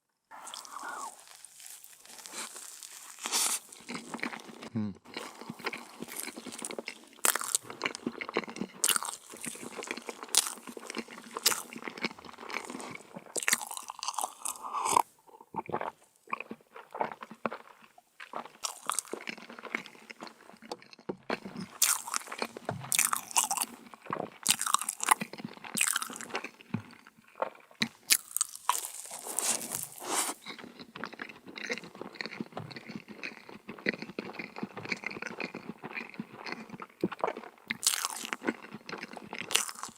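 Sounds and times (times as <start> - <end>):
crunchy cookies being chewed: 0.3 - 39.9.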